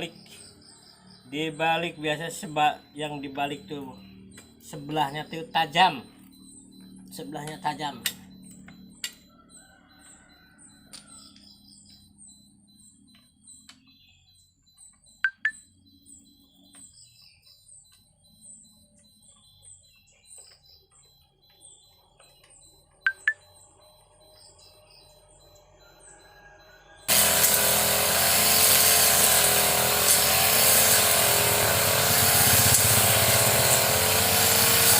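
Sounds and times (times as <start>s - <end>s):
small birds chirping: 0.0s - 27.0s, 28.8s - 34.9s.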